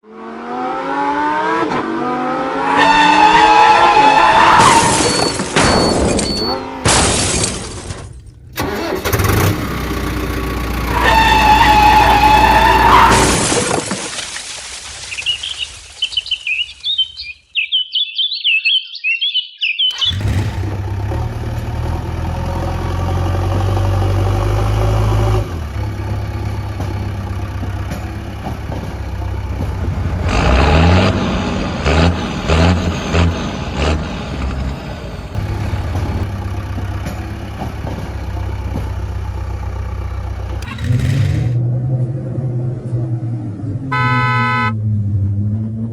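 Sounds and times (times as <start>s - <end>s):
vehicle engine running: 8.3s - 11.6s, 20.0s - 43.2s
birds chirping: 15.0s - 20.2s
loud sweeping tone: 43.9s - 44.8s.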